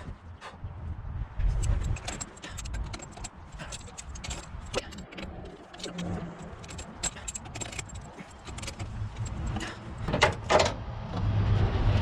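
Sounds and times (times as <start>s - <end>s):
hand wrench clicking on metal: 1.6s - 9.8s
metal clank: 1.6s - 10.7s.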